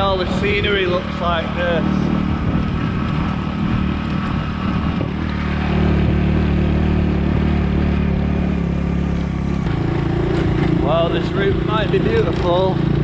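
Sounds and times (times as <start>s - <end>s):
wind noise: 0.0s - 8.2s
motorbike engine cruising: 0.0s - 13.0s
road noise: 0.0s - 13.0s.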